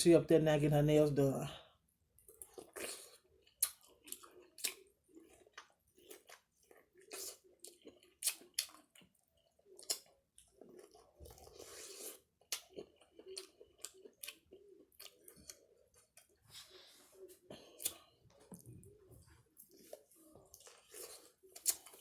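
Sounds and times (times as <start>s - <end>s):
chewing mouth sounds: 2.3s - 16.4s, 19.6s - 22.0s.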